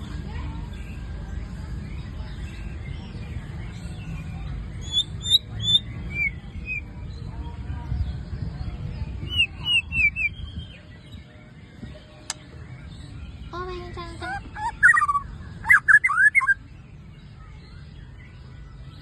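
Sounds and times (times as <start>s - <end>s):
bird chirping: 2.2s - 6.9s, 9.0s - 19.0s.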